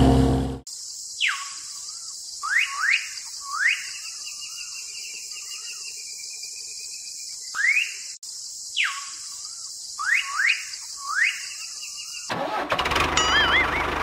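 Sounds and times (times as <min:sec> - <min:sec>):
birds whistled calls: 0:01.2 - 0:12.3, 0:13.2 - 0:14.0
bird trilling call: 0:13.2 - 0:14.0.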